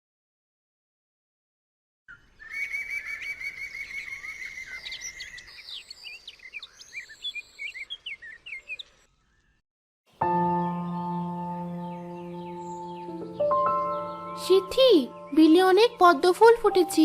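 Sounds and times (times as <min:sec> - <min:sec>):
birdsong trills and chirps: 0:02.1 - 0:17.0
sustained musical chord: 0:10.2 - 0:17.0.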